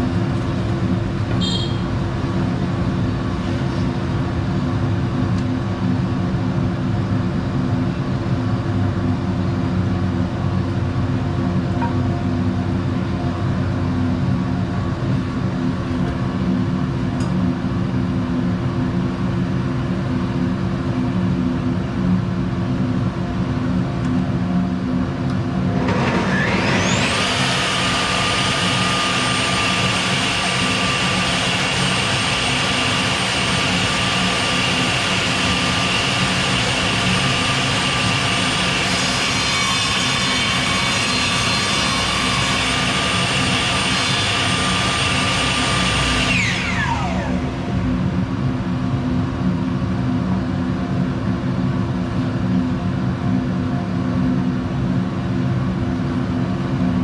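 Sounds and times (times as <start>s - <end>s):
table saw motor whine: 1.4s - 1.9s, 25.8s - 48.4s.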